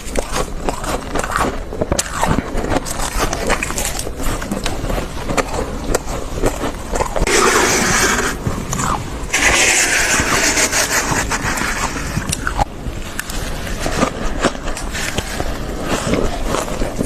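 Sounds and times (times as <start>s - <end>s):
frost scraped off freezer wall: 7.2s - 8.5s, 9.3s - 12.4s.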